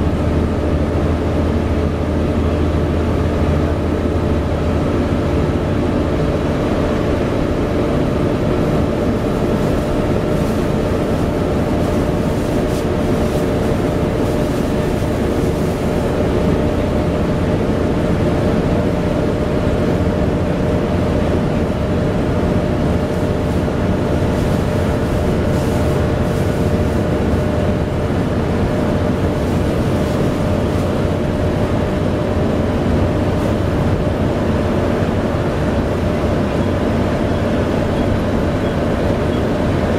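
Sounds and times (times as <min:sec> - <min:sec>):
bus engine running: 0:00.0 - 0:39.9
cooling fan whine: 0:00.0 - 0:39.9.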